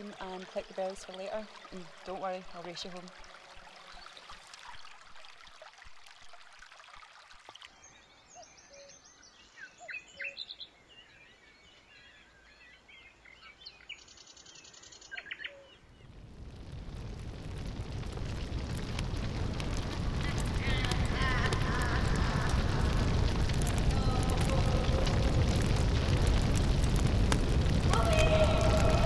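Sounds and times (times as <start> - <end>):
faint stream trickling: 0.0 - 16.2
birds chirping and trilling: 7.7 - 16.1
low rushing noise: 16.1 - 29.0.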